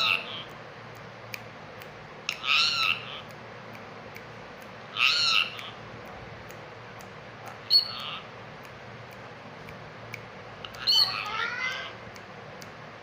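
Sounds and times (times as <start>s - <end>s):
parakeet squawking: 0.0s - 0.6s, 2.3s - 3.3s, 4.9s - 5.8s, 7.6s - 8.3s, 10.6s - 12.0s.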